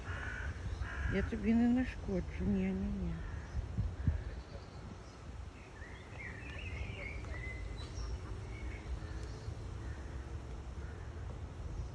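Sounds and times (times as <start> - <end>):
outdoor background rumble: 0.0 - 11.9
high twittering bird calls: 2.6 - 11.1.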